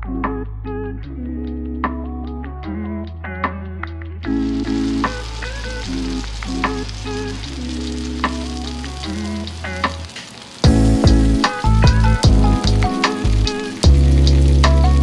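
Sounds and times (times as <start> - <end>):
background music with bass line: 0.0 - 15.0
food sizzling in skillets: 4.3 - 15.0.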